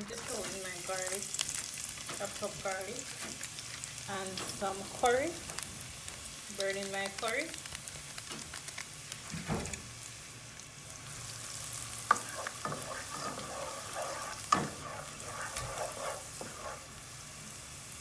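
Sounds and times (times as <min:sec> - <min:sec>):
garlic sizzling in hot oil: 0:00.0 - 0:18.0
spoon scraping pot: 0:12.0 - 0:17.0.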